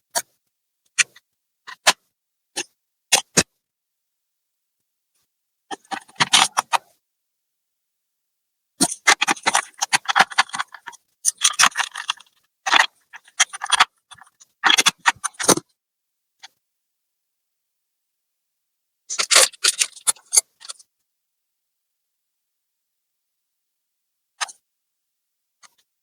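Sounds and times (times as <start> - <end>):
small hard parts clicking and rattling: 8.8 - 15.6.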